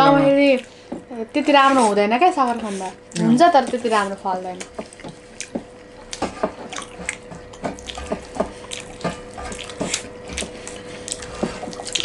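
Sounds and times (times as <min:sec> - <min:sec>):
wet chewing and smacking: 0:02.4 - 0:12.0.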